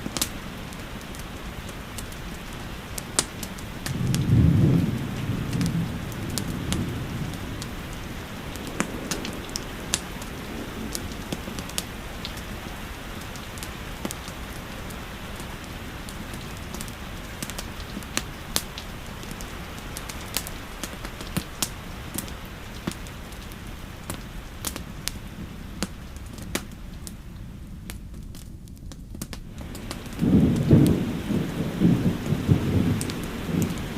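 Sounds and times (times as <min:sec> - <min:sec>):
steady rain hiss: 0:00.0 - 0:33.9
wood fire crackling and popping: 0:00.0 - 0:33.9
low thunder rumble: 0:03.0 - 0:22.3, 0:29.5 - 0:33.9.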